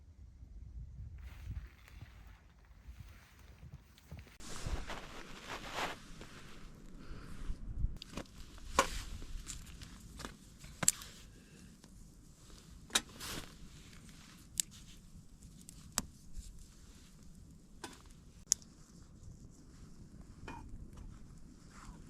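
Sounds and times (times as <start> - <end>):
soft rustling: 1.2 - 7.5.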